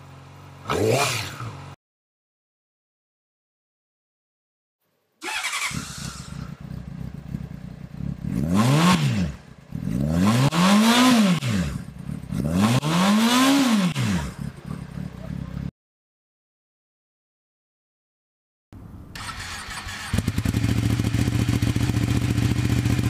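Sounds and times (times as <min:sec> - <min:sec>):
motorcycle engine starting and revving: 0:00.0 - 0:01.8, 0:05.2 - 0:15.7, 0:19.1 - 0:23.0.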